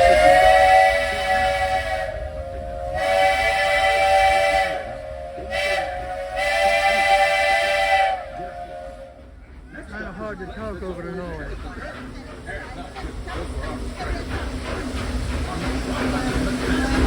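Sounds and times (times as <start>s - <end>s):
steam locomotive whistle blasts: 0.0s - 9.2s.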